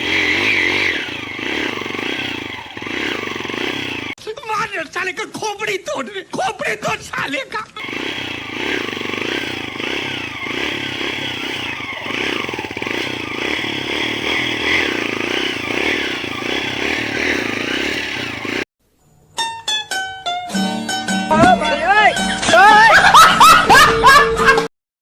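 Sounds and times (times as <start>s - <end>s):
plucked-string music: 19.4s - 23.0s.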